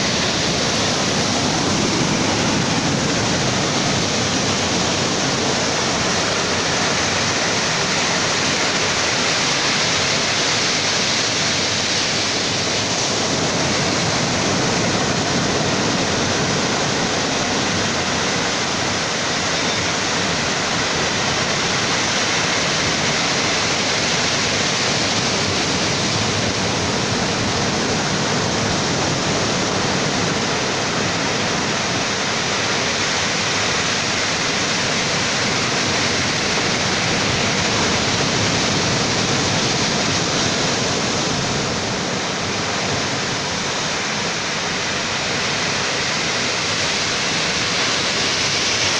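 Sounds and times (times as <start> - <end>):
ocean surf roaring: 0.0 - 48.9.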